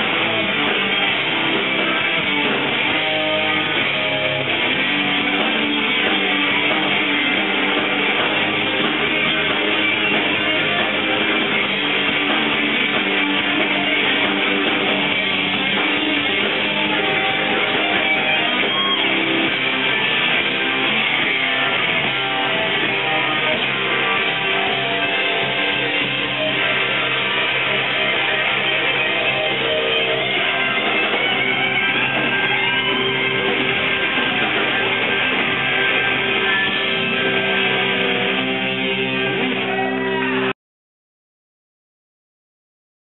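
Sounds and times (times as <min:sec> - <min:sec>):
rock band playing: 0:00.0 - 0:40.5
strummed guitars: 0:00.0 - 0:40.5.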